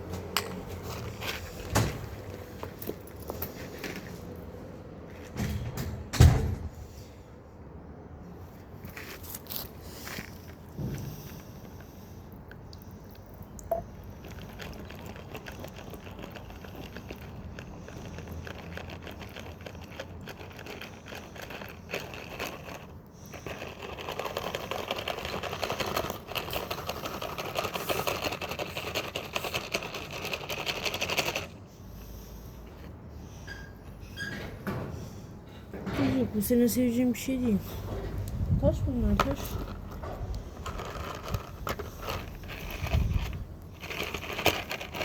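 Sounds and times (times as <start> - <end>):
gravel crunching and scraping: 0.0 - 5.3, 8.4 - 12.2, 37.8 - 45.0.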